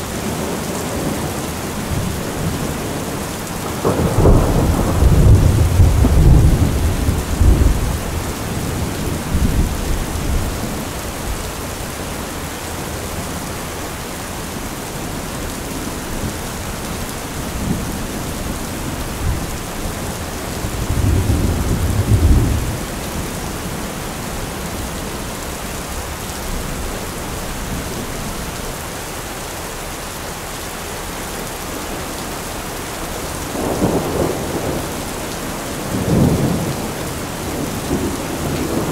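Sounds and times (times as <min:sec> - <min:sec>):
steady rain: 0:00.0 - 0:38.9
rolling thunder: 0:01.0 - 0:11.5, 0:15.2 - 0:28.6, 0:33.3 - 0:38.9.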